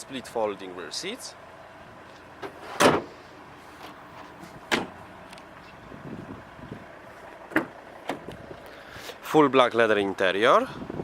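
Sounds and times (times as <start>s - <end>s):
car fittings clunking: 7.5s - 8.7s.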